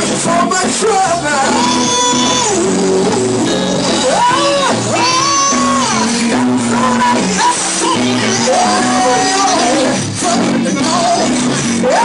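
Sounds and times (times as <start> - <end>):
gospel band accompaniment: 0.0 - 12.0
person singing long sliding notes: 1.3 - 12.0.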